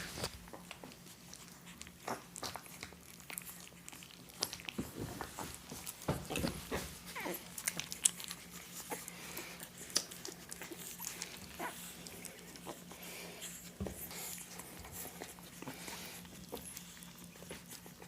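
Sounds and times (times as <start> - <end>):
puppies suckling: 0.0 - 18.0
puppy whimper: 5.2 - 18.0
soft breathing: 8.8 - 10.0, 11.0 - 16.6.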